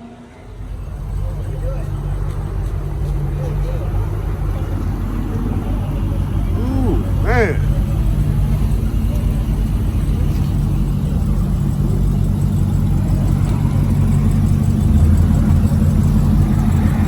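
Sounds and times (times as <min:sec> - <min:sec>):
car engine running at low revs: 0:00.5 - 0:17.0.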